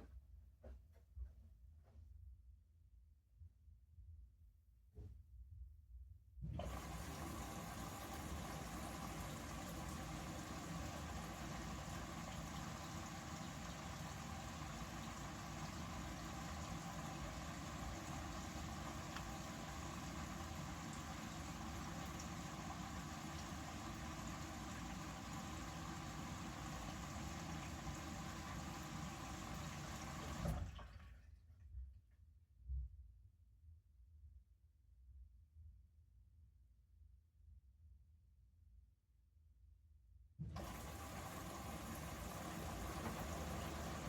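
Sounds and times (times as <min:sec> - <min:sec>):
washing machine motor hum: 0:06.4 - 0:31.2, 0:40.4 - 0:44.0.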